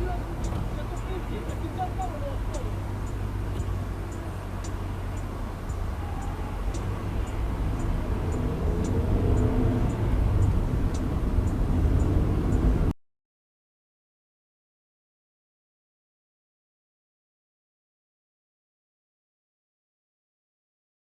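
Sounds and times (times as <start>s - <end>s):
car engine: 0.0s - 13.0s
road rumble: 0.0s - 13.0s
faint sharp tick: 0.4s - 12.6s.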